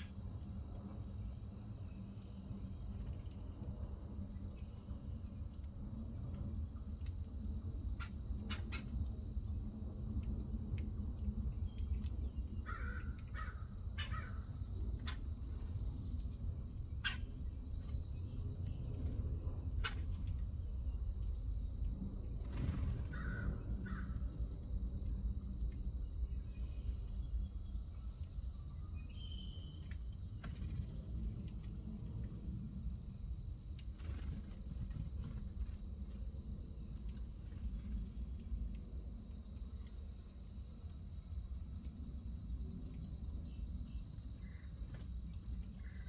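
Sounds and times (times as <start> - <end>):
low outdoor rumble: 0.0 - 46.0
crow cawing: 12.7 - 14.4.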